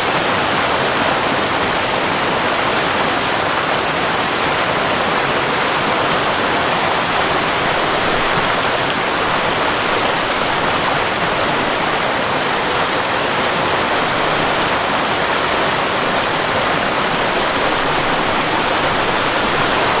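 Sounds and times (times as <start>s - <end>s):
waterfall pouring: 4.5s - 20.0s.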